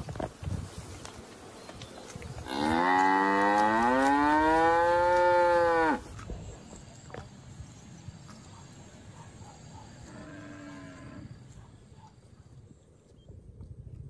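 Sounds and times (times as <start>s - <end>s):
calf mooing: 2.5s - 6.0s.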